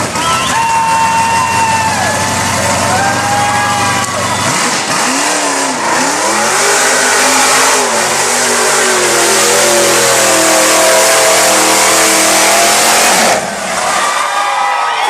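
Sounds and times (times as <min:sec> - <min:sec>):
truck engine revving hard: 0:00.0 - 0:14.5.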